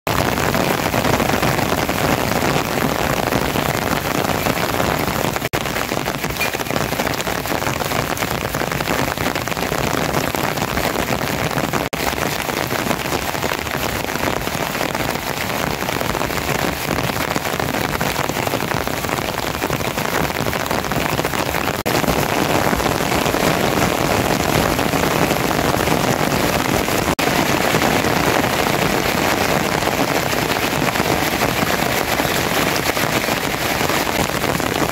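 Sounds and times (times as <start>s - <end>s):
steady rain patter: 0.1s - 34.9s.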